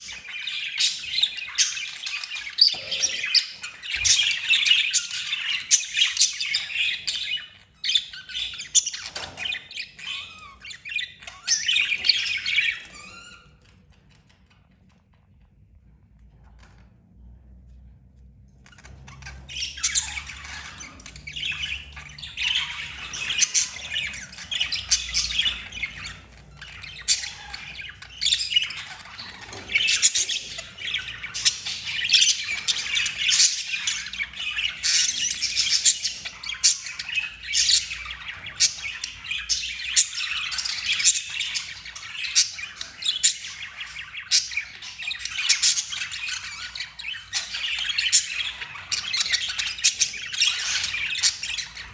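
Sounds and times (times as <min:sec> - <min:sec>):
budgerigar chirps and squawks: 0:00.0 - 0:13.6.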